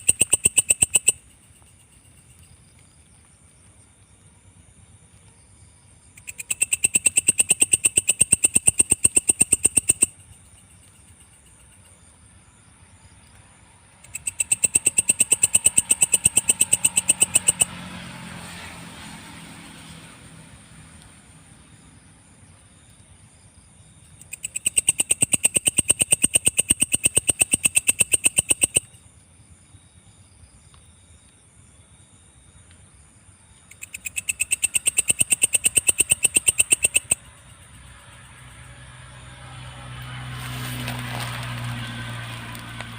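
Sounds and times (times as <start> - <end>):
katydid rapid clicking: 0.0 - 2.8, 6.2 - 12.0, 14.0 - 17.8, 24.1 - 29.0, 33.7 - 38.8
faint high insect whine: 0.0 - 42.9.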